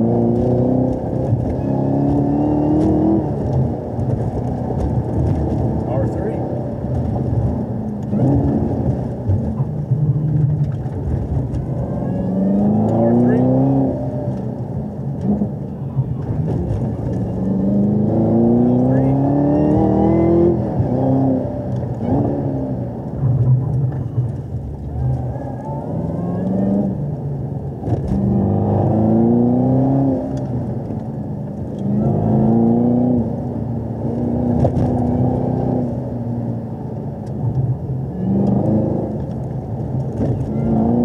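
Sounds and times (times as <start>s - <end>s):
sports car engine revving: 0.0s - 23.6s, 24.9s - 30.8s.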